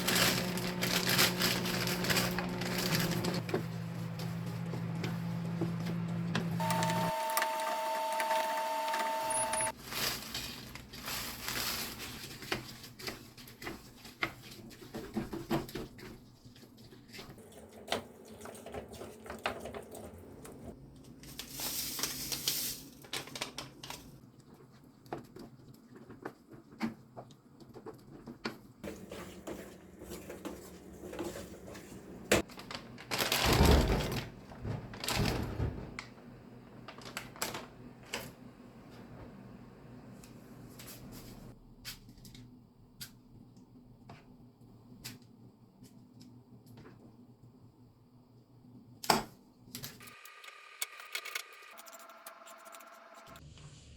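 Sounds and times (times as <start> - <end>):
utensils clattering: 0.0 - 3.5
two-tone hum: 3.4 - 9.7.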